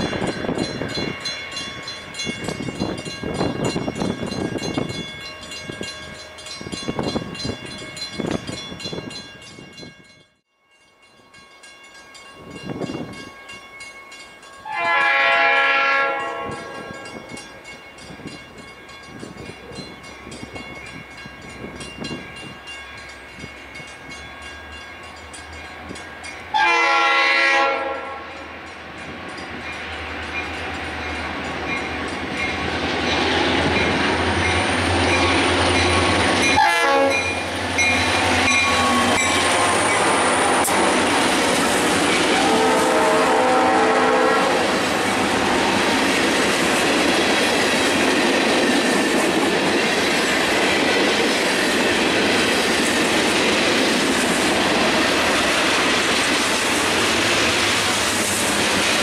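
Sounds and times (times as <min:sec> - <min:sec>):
freight train passing: 0:00.0 - 0:59.0
train horn blasts: 0:14.6 - 0:17.3, 0:26.5 - 0:28.5, 0:36.5 - 0:37.4, 0:42.2 - 0:45.5.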